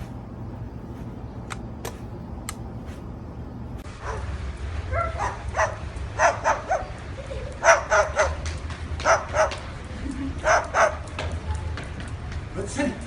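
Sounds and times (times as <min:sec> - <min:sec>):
dog barking: 0:04.0 - 0:04.3, 0:04.9 - 0:06.9, 0:07.6 - 0:08.4, 0:09.0 - 0:09.6, 0:10.4 - 0:11.1.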